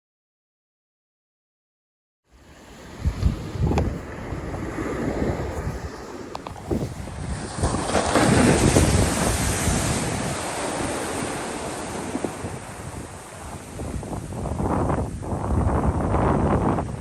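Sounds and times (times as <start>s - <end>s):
surf breaking on shore: 2.4s - 17.0s
wind buffeting microphone: 2.6s - 17.0s.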